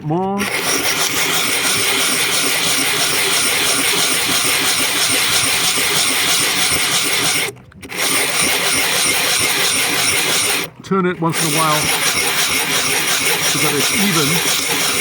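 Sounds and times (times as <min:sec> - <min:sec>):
glass scraping on sandpaper: 0:11.4 - 0:15.0.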